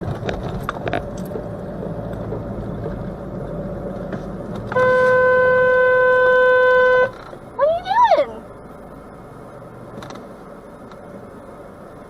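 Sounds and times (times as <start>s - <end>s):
car driving in traffic: 0.0s - 12.0s
car horn blast: 4.7s - 7.2s.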